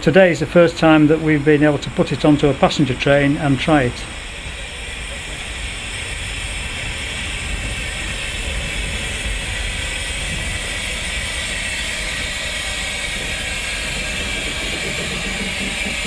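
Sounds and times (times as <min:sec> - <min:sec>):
steam locomotive hissing: 0:00.0 - 0:16.0
low rumble: 0:04.0 - 0:16.0.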